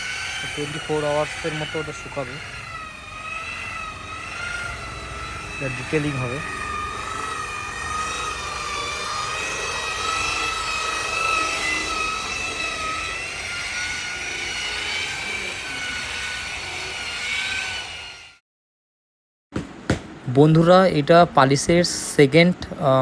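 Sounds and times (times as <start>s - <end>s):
electric motor whining: 0.0s - 18.4s.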